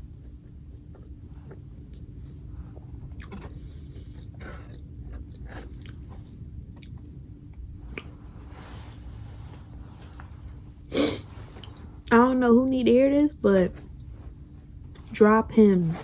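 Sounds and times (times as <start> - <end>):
person biting and chewing: 3.0 - 7.0.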